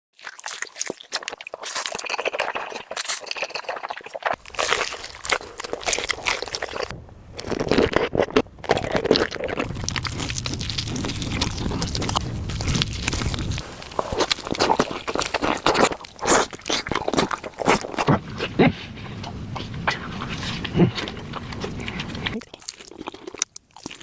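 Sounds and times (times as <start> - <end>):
crunching and wet chewing: 0.2 - 24.0
low rumble: 4.4 - 16.2.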